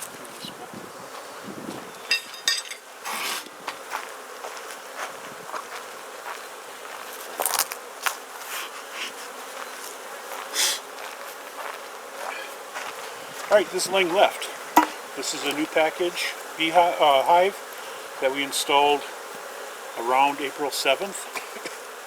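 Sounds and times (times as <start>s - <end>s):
bees buzzing: 0.0s - 22.0s
short sharp knocks: 14.8s - 15.0s.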